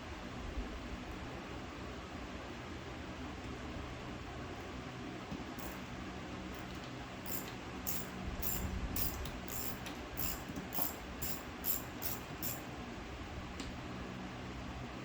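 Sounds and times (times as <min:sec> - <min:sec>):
ratchet wrench clicking: 0:05.6 - 0:05.8, 0:06.5 - 0:12.6.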